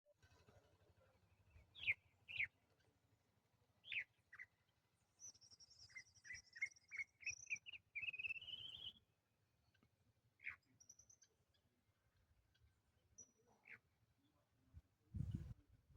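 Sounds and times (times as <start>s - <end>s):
bird song with high trill: 1.5s - 2.6s, 3.8s - 9.0s, 10.4s - 11.6s.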